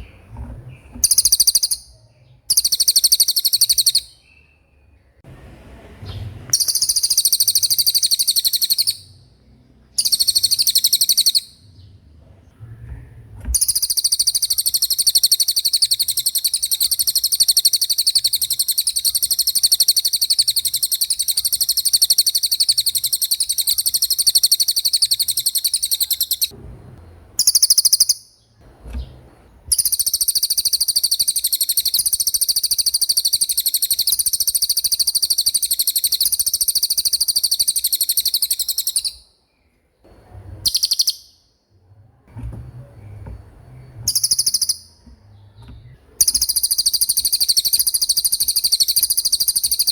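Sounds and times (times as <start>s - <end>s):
songbird singing rolling trill: 0.0s - 5.3s, 6.0s - 12.8s, 13.5s - 26.6s, 27.4s - 28.4s, 29.0s - 39.7s, 40.3s - 41.5s, 42.8s - 49.9s.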